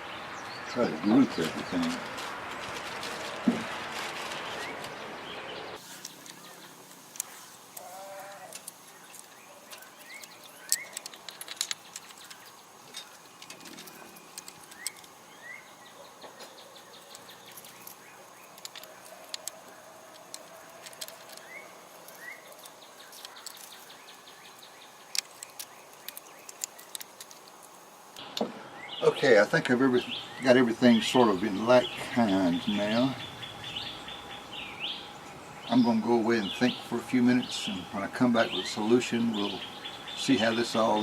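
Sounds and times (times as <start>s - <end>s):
small metal tools clinking: 8.5s - 15.2s, 16.4s - 24.3s.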